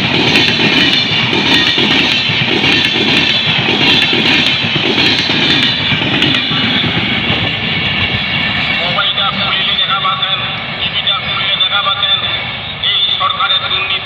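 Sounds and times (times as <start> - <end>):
train wheels clattering: 0.0 - 9.0
train wheels rumbling on rail: 0.0 - 14.0.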